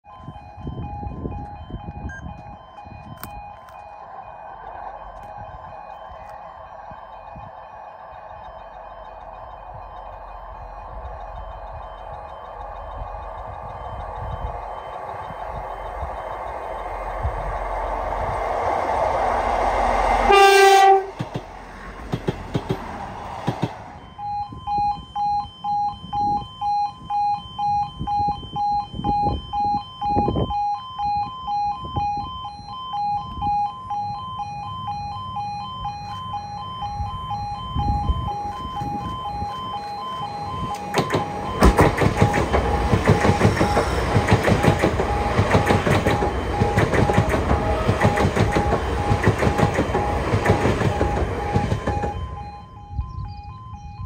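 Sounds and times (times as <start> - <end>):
crossing two-tone alarm: 0.0 - 54.0
train passing: 0.1 - 24.4, 33.2 - 53.7
wheels clattering on rails: 9.1 - 24.0, 39.8 - 52.5
train horn two-tone blast: 20.0 - 21.3.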